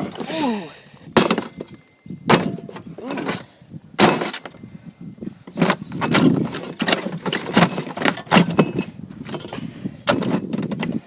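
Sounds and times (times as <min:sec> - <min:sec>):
metal fridge being struck: 0:02.3 - 0:02.7.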